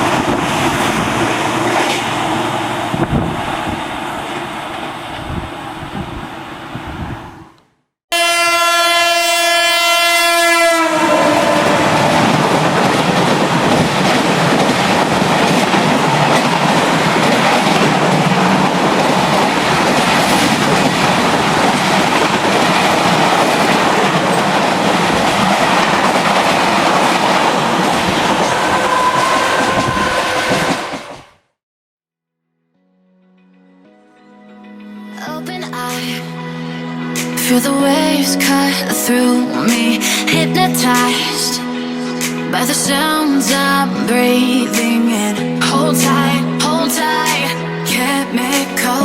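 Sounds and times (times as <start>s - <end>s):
train wheels clickety-clack: 0.0s - 2.2s, 11.9s - 31.3s
train horn blast: 8.1s - 12.7s, 28.5s - 31.1s.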